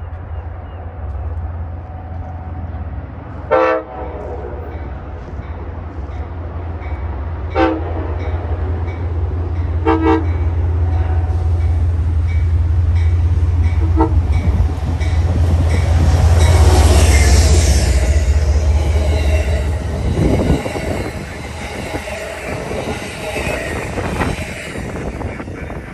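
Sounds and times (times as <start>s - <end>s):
train engine rumble: 0.0s - 25.9s
wheel and rail noise: 0.0s - 25.9s
train horn toots: 3.4s - 4.8s, 7.5s - 8.6s, 9.6s - 11.8s, 13.6s - 25.8s.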